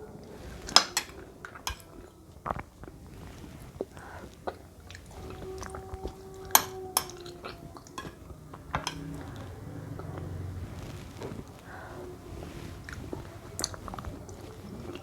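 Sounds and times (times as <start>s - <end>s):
wet stirring and scooping: 0.2s - 15.0s
spoon clinking against bowl: 0.7s - 2.0s, 6.5s - 9.5s.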